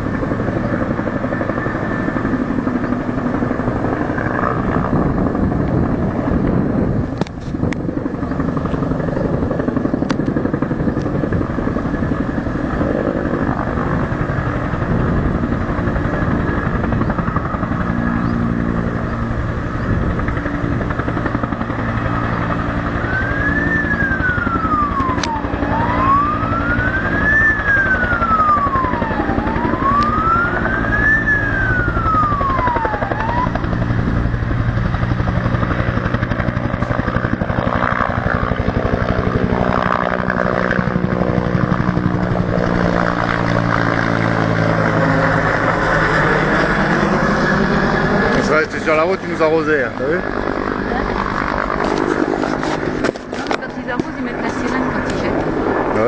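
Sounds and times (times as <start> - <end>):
emergency siren wailing: 12.8 - 55.9.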